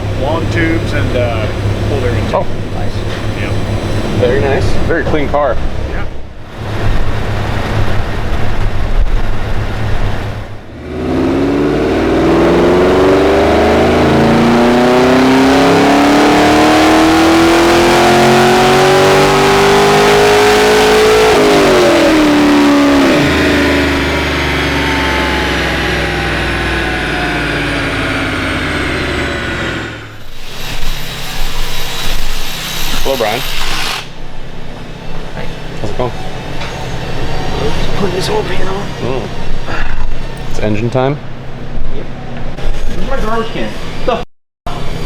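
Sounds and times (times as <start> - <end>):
car engine accelerating: 0.0 - 30.7.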